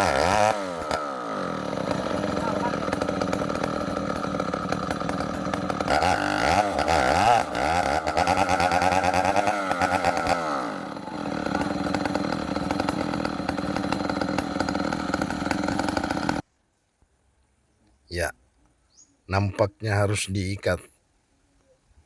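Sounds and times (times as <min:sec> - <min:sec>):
chainsaw cutting tree: 0:00.0 - 0:16.4.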